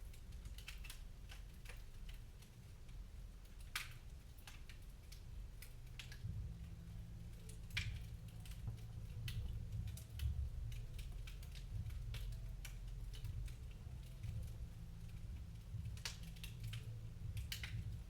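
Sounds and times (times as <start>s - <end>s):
wood fire crackling: 0.0s - 18.0s
low steady rumble: 5.4s - 18.0s.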